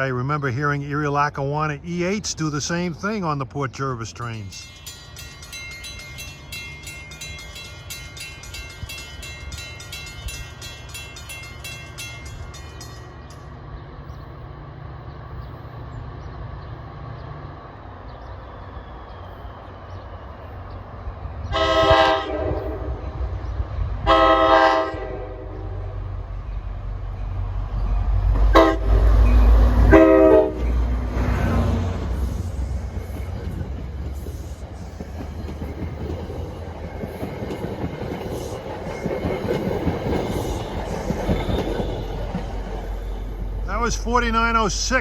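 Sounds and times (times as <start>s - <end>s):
diesel locomotive rumbling: 0.0s - 45.0s
crossing bell ringing: 3.9s - 14.2s, 27.2s - 45.0s
locomotive horn blasts: 21.5s - 23.1s, 24.0s - 25.8s, 28.5s - 30.8s.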